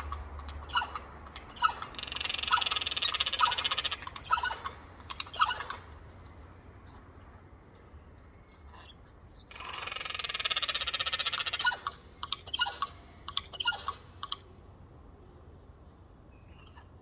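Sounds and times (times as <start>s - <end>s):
jay rattle call: 0.0s - 5.8s.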